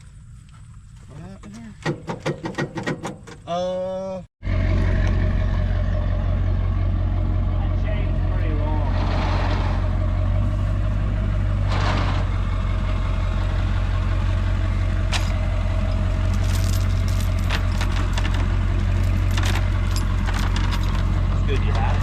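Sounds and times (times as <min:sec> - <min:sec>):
vehicle engine idling: 0:04.4 - 0:22.0
clicking and rattling: 0:15.1 - 0:22.0.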